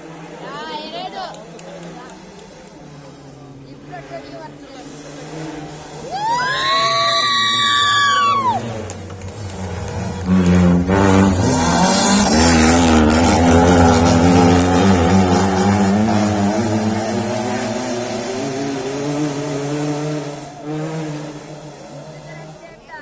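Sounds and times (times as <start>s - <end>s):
rally car engine revving past: 1.4s - 22.7s.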